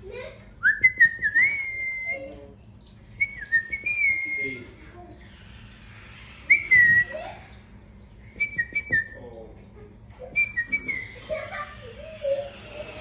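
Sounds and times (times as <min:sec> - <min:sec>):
chick chirping: 0:00.0 - 0:13.0.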